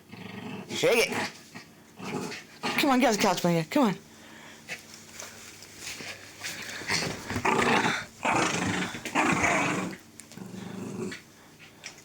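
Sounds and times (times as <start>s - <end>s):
dog growling in play: 0.0s - 2.9s, 6.8s - 11.7s.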